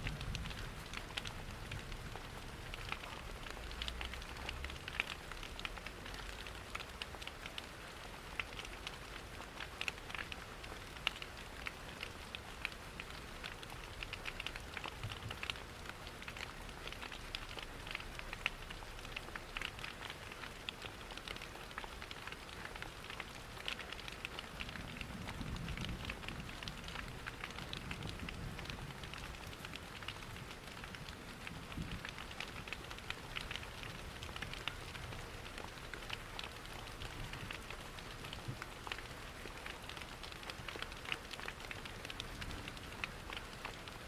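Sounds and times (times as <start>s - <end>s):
rain patter: 0.0s - 44.0s.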